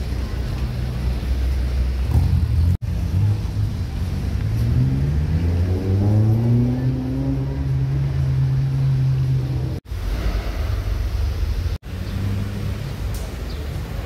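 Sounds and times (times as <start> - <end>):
car engines rumbling: 0.0 - 14.0
car pulling away: 1.7 - 9.8.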